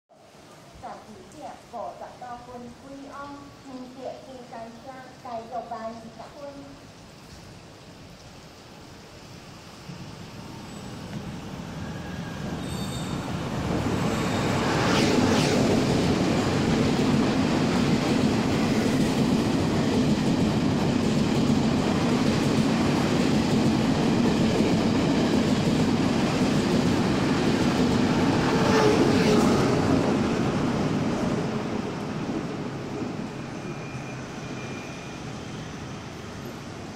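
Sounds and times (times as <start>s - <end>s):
train passing rumble: 7.6s - 36.9s
sharp air rushes: 10.0s - 19.2s.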